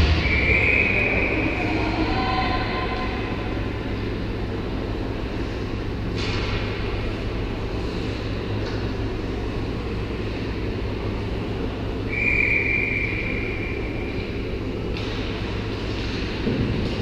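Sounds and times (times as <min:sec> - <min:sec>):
long high whistle tone: 0:00.0 - 0:02.4, 0:12.0 - 0:14.4
low hum and murmur: 0:00.0 - 0:17.0.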